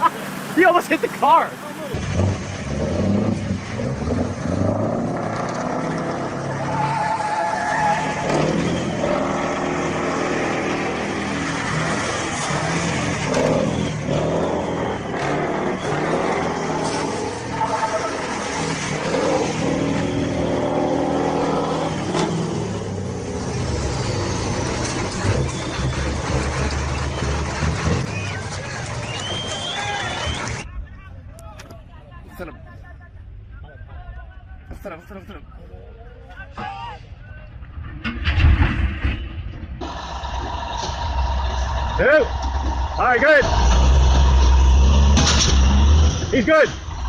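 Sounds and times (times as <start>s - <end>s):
heavy truck engine running: 8.0s - 30.6s, 37.8s - 47.0s.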